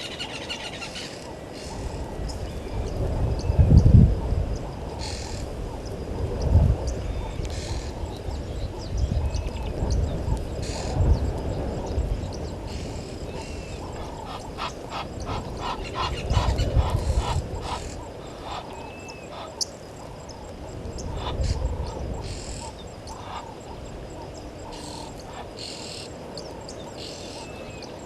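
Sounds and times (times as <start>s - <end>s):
rapid animal calls: 0.0s - 2.3s, 4.6s - 5.8s, 12.6s - 26.2s
wind rumbling on microphone: 0.0s - 28.0s.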